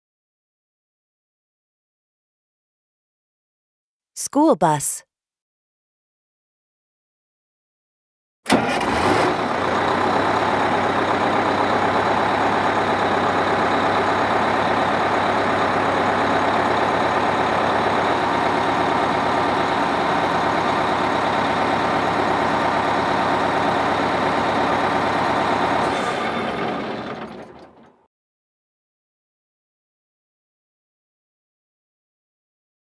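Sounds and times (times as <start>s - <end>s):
bus engine running: 8.5s - 28.0s.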